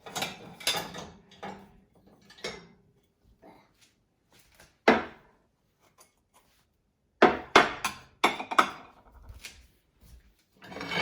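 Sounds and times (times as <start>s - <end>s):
dishes clinking and knocking: 0.0s - 3.0s, 4.8s - 5.3s, 7.2s - 9.2s.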